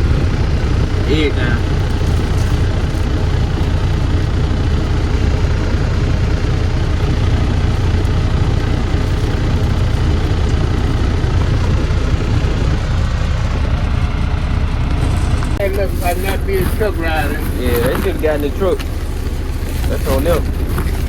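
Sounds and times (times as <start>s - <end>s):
cab and road noise: 0.0s - 21.0s
truck engine rumbling: 0.0s - 21.0s.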